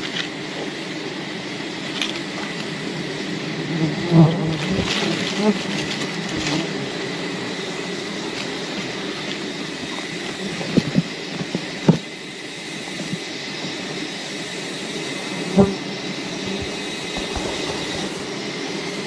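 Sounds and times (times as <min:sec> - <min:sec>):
bees humming: 0:15.1 - 0:19.0.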